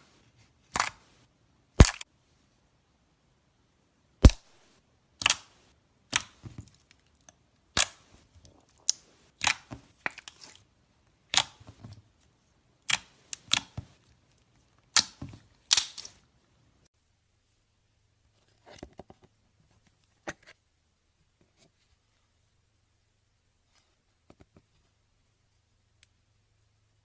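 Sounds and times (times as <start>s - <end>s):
slime squeezed with air pops: 1.8s - 2.0s.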